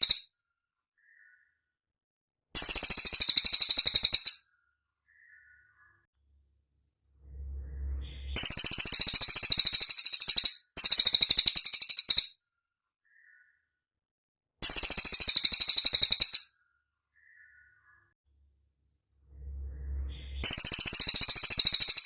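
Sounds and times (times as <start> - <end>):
bird trilling high-pitched: 2.6 - 4.4, 7.8 - 12.4, 14.6 - 16.5, 19.9 - 22.0
low rumble: 6.2 - 9.0, 18.3 - 21.0.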